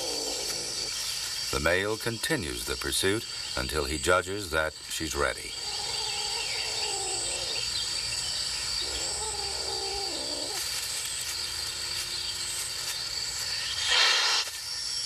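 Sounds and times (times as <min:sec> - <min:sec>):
cats yowling: 0:00.0 - 0:00.9, 0:05.6 - 0:07.8, 0:08.8 - 0:10.6
crickets chirring: 0:00.0 - 0:15.0
cat hissing: 0:13.8 - 0:14.5.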